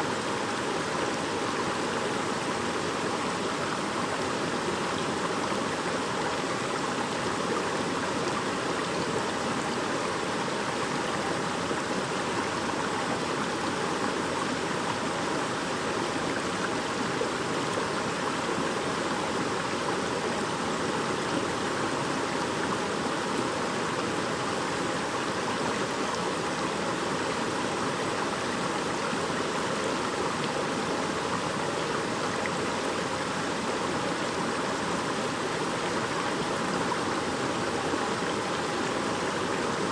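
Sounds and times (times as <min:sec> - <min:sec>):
stream babbling over stones: 0:00.1 - 0:39.9.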